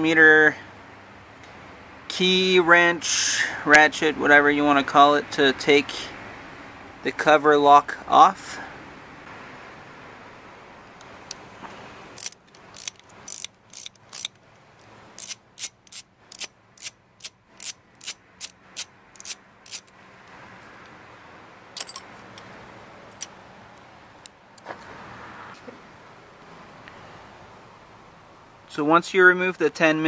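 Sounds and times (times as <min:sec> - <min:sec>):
socket ratchet clicking: 0:12.2 - 0:14.4, 0:15.2 - 0:20.0.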